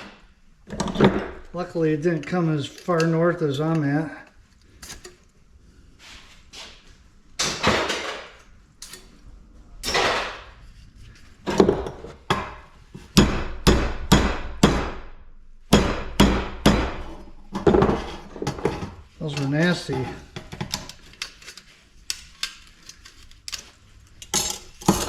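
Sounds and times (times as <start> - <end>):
hammer striking scrap metal: 9.8 - 10.5, 15.7 - 17.9.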